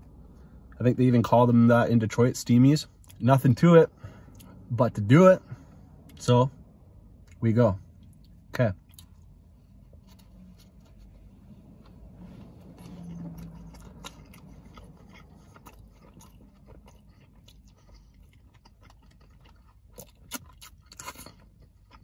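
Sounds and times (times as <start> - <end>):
low hum: 3.9 - 18.3
wet chewing with mouth clicks: 8.0 - 22.0.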